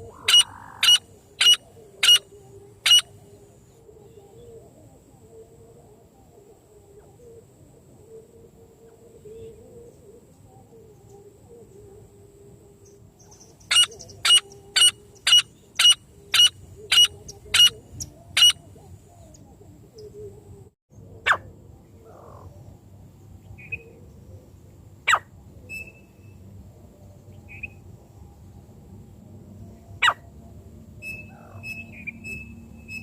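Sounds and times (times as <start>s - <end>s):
francolin calling: 0.0s - 4.6s, 12.8s - 20.6s
faint bird chirps: 0.0s - 4.8s, 12.8s - 20.5s.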